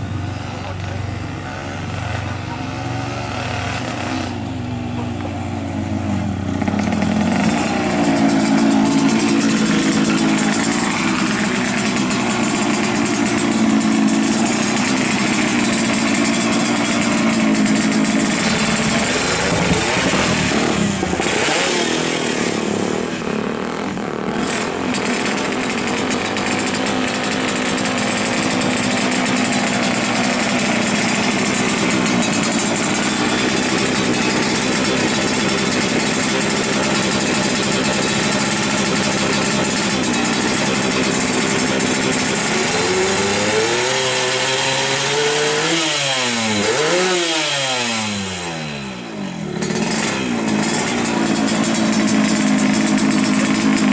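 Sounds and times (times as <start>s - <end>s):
two-stroke motorcycle engine revving: 0.0s - 53.9s.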